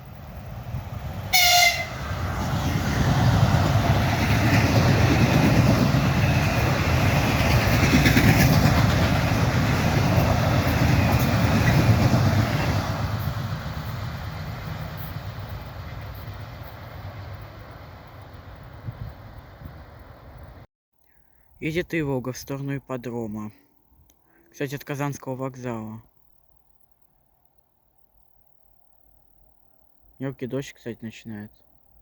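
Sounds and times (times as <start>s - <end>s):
train wheels rushing on rail: 0.0s - 20.6s
train horn blast: 1.3s - 2.2s.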